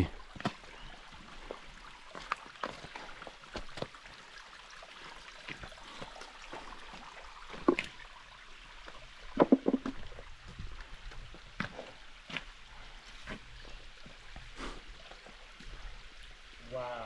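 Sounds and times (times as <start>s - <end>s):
faint stream: 0.0s - 17.0s
knocks on rock: 9.4s - 10.0s
footsteps and scrapes on rock: 9.4s - 14.5s.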